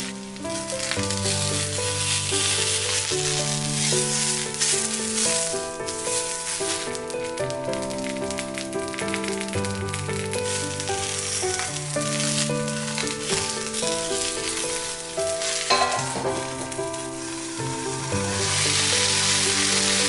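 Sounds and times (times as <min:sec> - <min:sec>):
background music: 0:00.0 - 0:20.0
eggplant sizzling in oil: 0:00.0 - 0:20.0.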